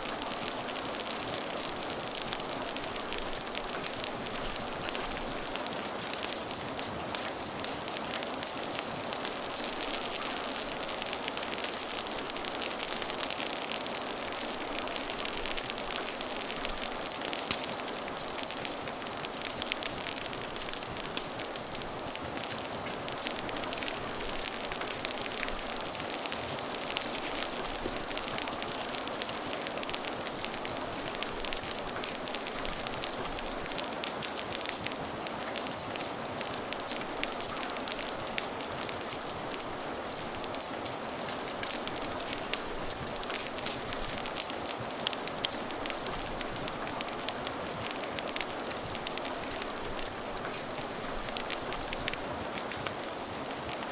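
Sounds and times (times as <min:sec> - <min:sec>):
steady rain hiss: 0:00.0 - 0:53.9
wood fire crackling: 0:00.0 - 0:53.9
fire pops: 0:11.1 - 0:53.9.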